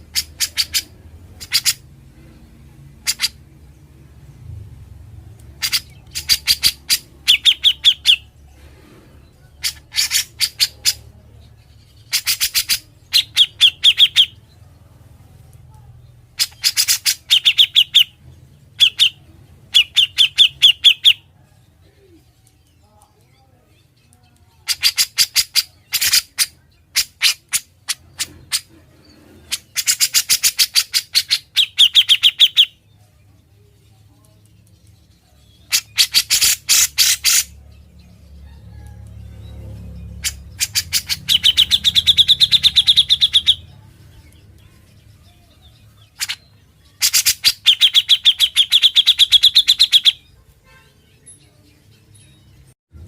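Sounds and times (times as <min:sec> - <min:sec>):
bird singing rapid chips: 0:00.0 - 0:01.9, 0:03.0 - 0:03.5, 0:05.4 - 0:08.4, 0:09.6 - 0:11.0, 0:11.6 - 0:14.5, 0:16.3 - 0:21.3, 0:24.6 - 0:28.7, 0:29.5 - 0:32.8, 0:34.8 - 0:38.8, 0:39.8 - 0:52.8.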